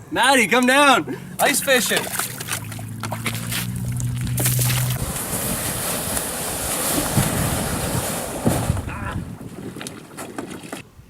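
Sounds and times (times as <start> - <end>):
wind on microphone: 3.5 - 11.0.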